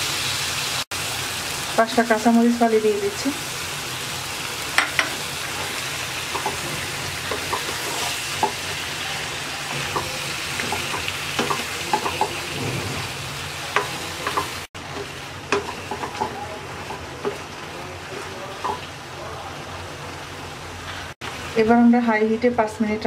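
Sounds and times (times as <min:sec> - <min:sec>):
vegetables sizzling in hot oil: 0:00.0 - 0:23.0
spatula scraping a wok: 0:04.8 - 0:18.9.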